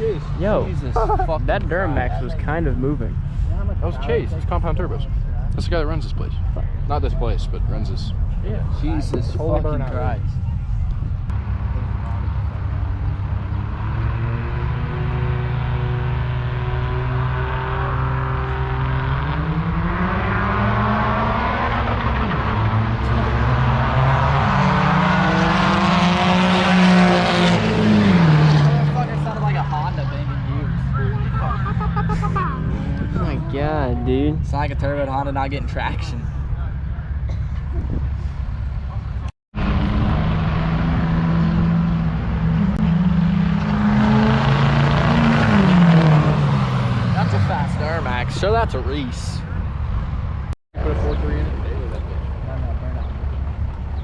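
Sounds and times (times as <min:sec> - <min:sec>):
truck engine revving high: 0:11.3 - 0:34.5, 0:39.6 - 0:49.1.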